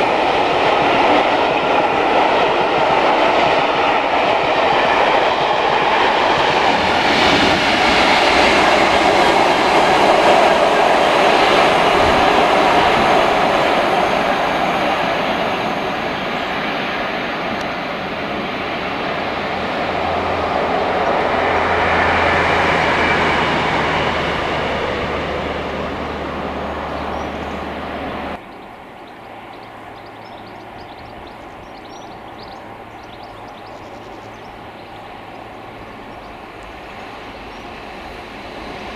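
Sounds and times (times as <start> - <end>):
train wheels rumbling on rails: 0.0 - 28.4, 29.3 - 38.9
steady low hum: 7.6 - 28.4.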